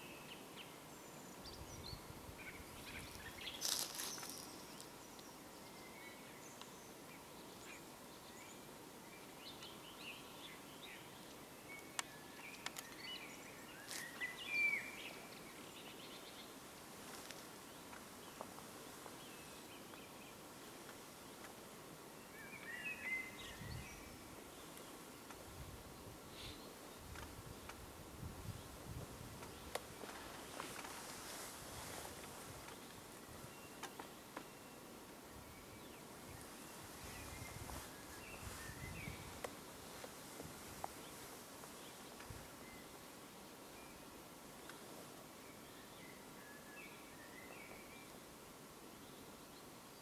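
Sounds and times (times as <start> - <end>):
outdoor background hiss: 0.0 - 50.0
wild birds singing: 0.0 - 50.0
faint sharp clicks: 11.2 - 13.1, 24.7 - 25.4, 27.1 - 27.8, 29.4 - 31.0, 33.8 - 34.5, 44.6 - 44.8.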